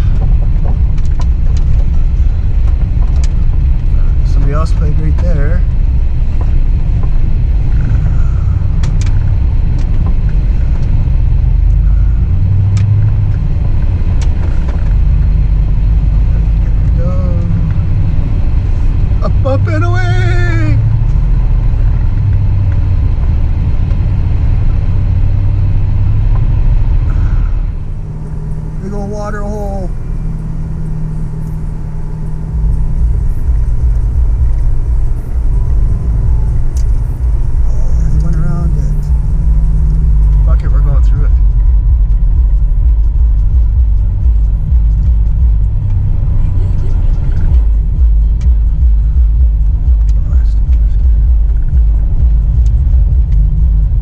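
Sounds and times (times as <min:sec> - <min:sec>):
truck engine rumble: 0:00.0 - 0:54.0.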